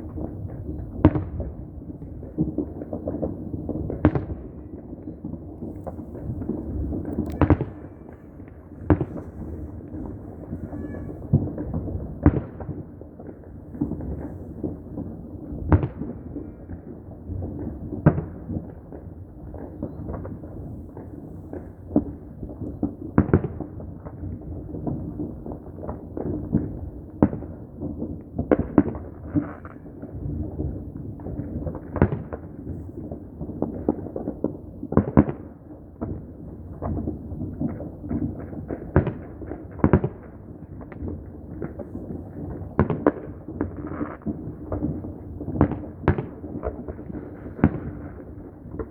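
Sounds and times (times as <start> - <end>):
distant fireworks rumble: 0.0 - 48.9
firecracker bangs: 5.5 - 16.6.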